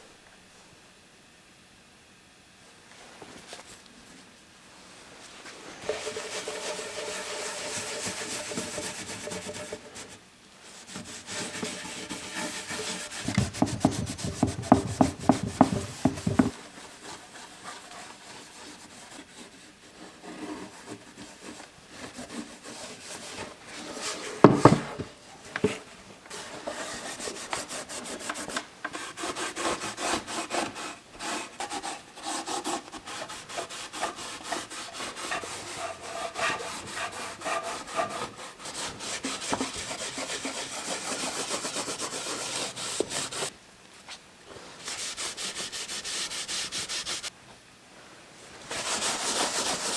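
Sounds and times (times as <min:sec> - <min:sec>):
rubbing and scraping on wood: 0:05.4 - 0:43.5, 0:44.8 - 0:47.3
loud knock on wood: 0:13.2 - 0:16.5, 0:24.5 - 0:24.8.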